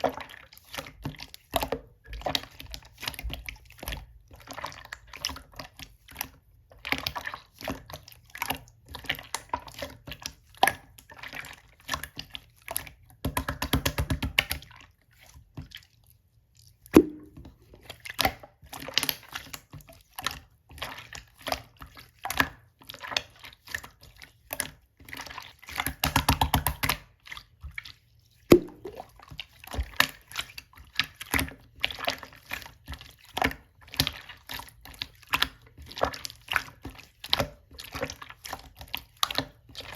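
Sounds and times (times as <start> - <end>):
slime squished by hand: 28.5 - 29.1.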